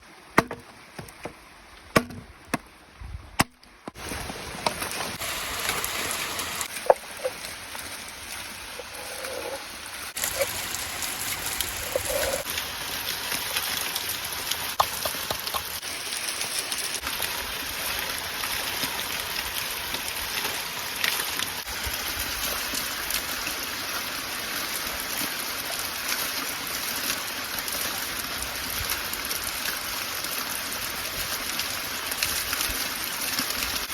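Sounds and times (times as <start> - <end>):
meat sizzling in a pan: 5.1 - 6.8.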